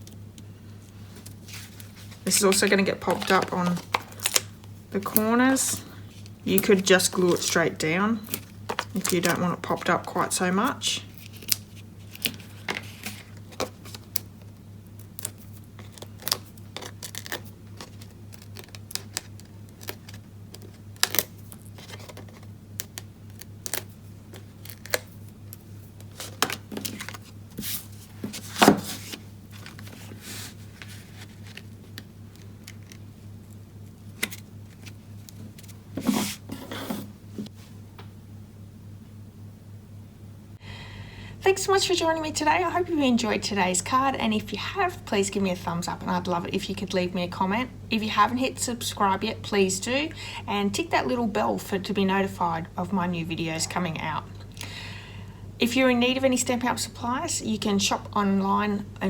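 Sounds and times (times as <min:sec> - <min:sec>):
paper rustling: 0:01.0 - 0:04.5, 0:05.6 - 0:14.2, 0:15.2 - 0:25.2, 0:26.0 - 0:33.2, 0:34.2 - 0:37.5.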